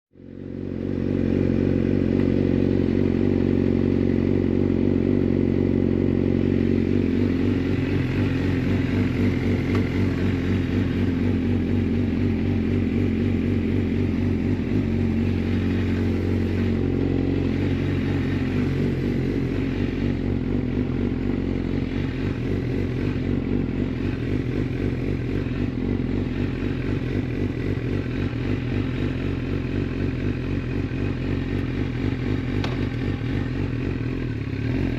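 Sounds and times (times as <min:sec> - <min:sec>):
motorcycle engine idling: 0:00.2 - 0:34.9.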